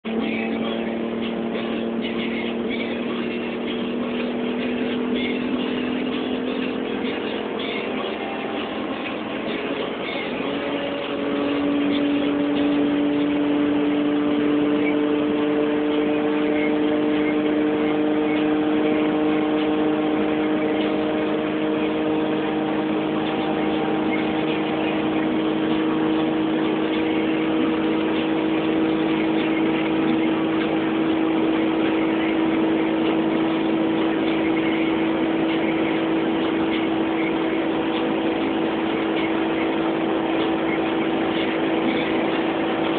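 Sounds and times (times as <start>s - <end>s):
car engine accelerating: 0.0s - 42.9s
road noise: 0.0s - 42.9s.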